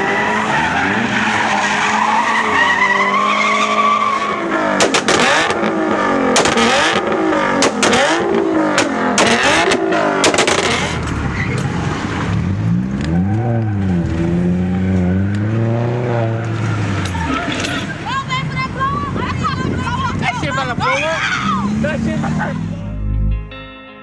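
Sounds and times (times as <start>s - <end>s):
tires squealing: 0.0s - 23.4s
car engine revving hard: 0.0s - 23.5s
sharp cracks: 4.7s - 13.8s.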